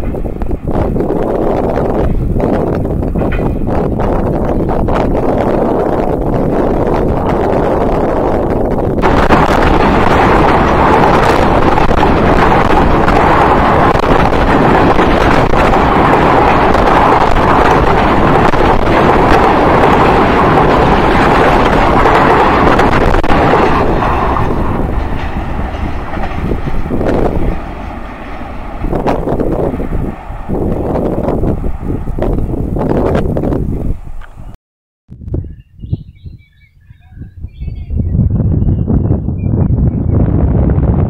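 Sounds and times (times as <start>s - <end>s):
train wheels rumbling on rails: 0.0s - 34.6s.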